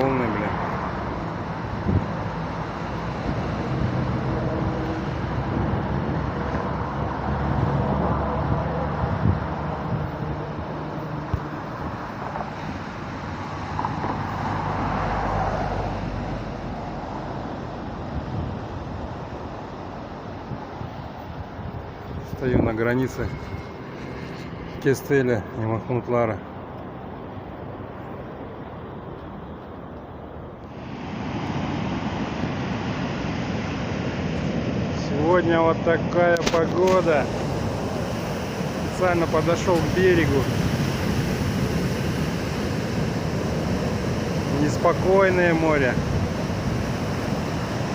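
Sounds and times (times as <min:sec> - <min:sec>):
wind rumbling on microphone: 0:00.0 - 0:25.6, 0:26.5 - 0:47.9
surf washing ashore: 0:00.0 - 0:47.9
waves breaking on shore: 0:00.0 - 0:47.9
wind buffeting microphone: 0:00.6 - 0:14.5, 0:16.8 - 0:24.8.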